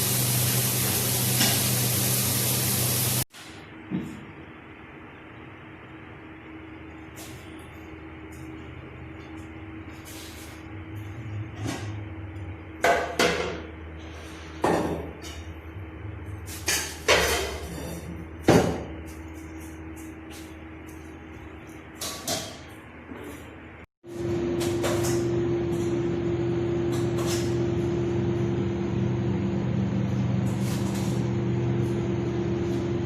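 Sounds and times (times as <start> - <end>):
kitchen utensils clattering: 16.5 - 18.2.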